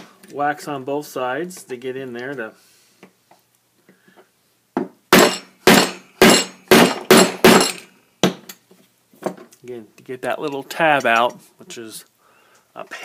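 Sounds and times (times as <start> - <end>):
hammer striking metal fitting: 5.2 - 7.8.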